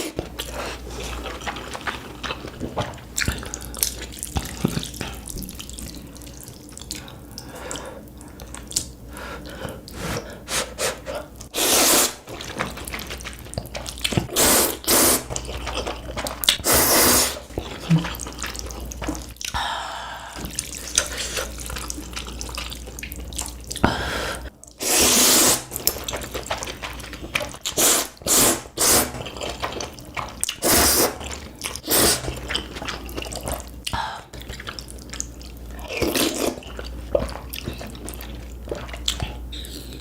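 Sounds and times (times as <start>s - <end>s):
smacking and chewing: 0.0s - 19.7s, 20.4s - 23.9s, 24.5s - 40.0s
wet slurps of noodles: 10.1s - 19.2s, 24.8s - 33.6s.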